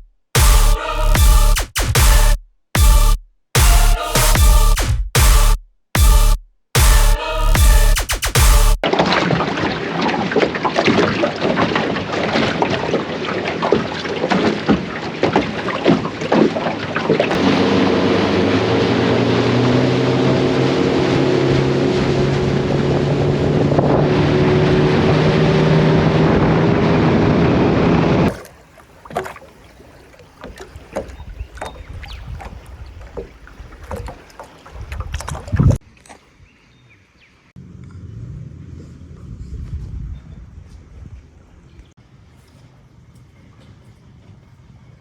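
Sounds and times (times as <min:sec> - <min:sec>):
wind and water noise: 0:08.8 - 0:45.0
outboard motor running: 0:17.3 - 0:28.4
outdoor ambience: 0:23.8 - 0:45.0.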